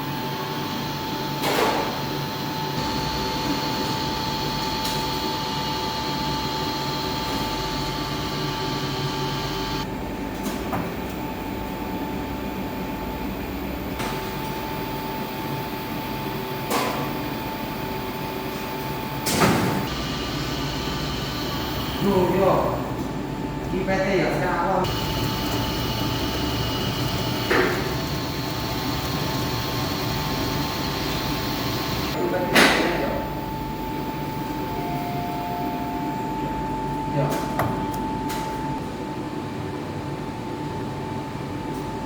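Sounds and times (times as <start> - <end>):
elevator machine whining: 2.0 - 9.9, 14.6 - 23.6, 24.3 - 38.8.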